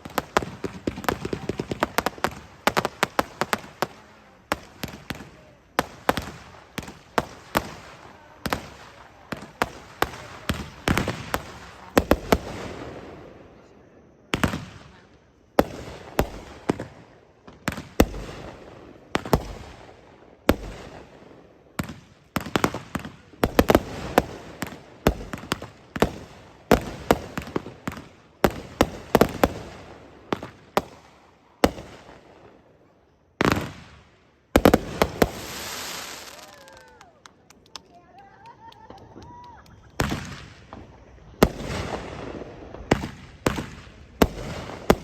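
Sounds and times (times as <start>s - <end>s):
firework crackling: 0.0s - 13.4s, 15.6s - 32.4s, 33.4s - 45.0s.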